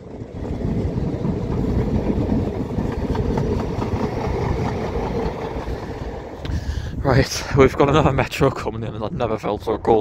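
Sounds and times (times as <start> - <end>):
train wheels rumbling on rail: 0.0 - 8.8.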